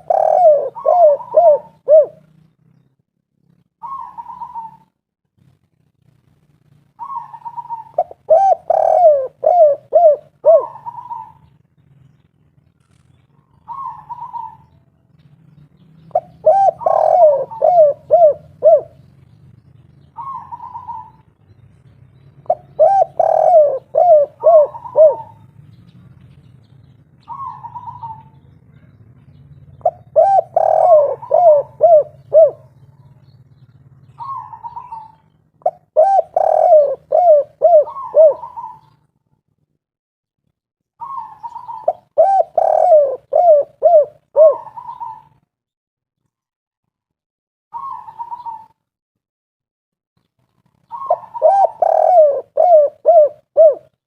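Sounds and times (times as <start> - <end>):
dove cooing: 0.0 - 2.4, 3.8 - 5.0, 7.0 - 11.5, 13.4 - 14.8, 16.0 - 19.1, 19.8 - 21.3, 22.4 - 25.5, 27.2 - 29.0, 29.8 - 39.0, 41.0 - 45.4, 47.8 - 48.8, 50.8 - 54.0.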